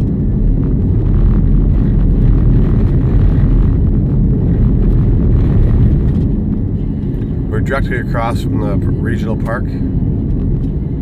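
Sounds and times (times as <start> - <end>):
vehicle driving on rough road: 0.0 - 11.0.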